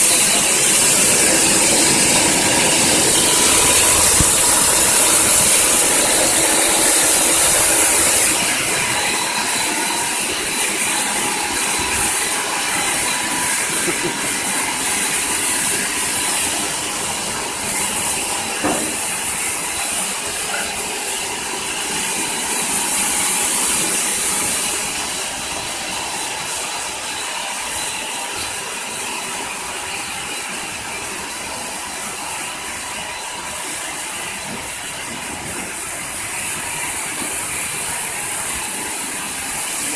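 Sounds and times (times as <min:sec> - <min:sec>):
loud hiss: 0:00.0 - 0:20.4
machine running: 0:00.0 - 0:39.9.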